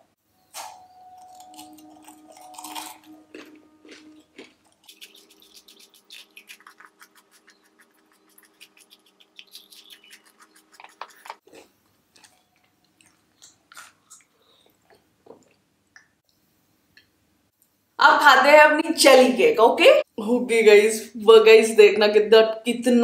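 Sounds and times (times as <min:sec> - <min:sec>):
crunchy chewing of waffle cone: 0:01.2 - 0:15.6.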